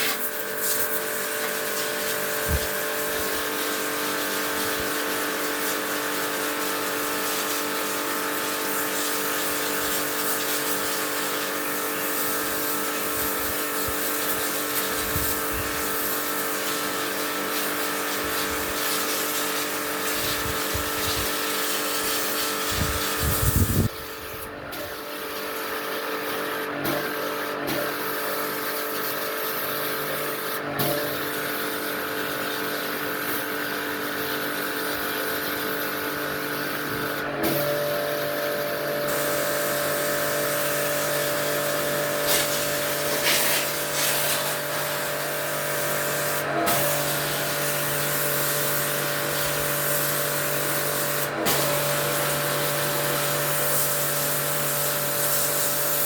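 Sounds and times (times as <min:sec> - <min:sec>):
hiss: 0:00.0 - 0:23.9, 0:39.1 - 0:56.0
electric motor humming: 0:22.7 - 0:24.6.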